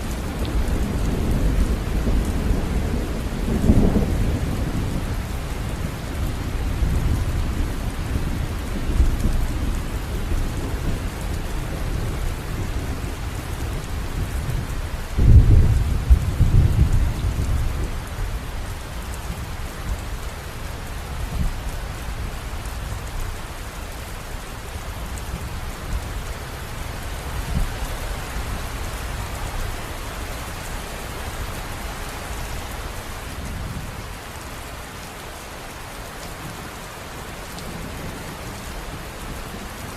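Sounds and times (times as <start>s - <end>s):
river water rushing: 26.3s - 39.9s.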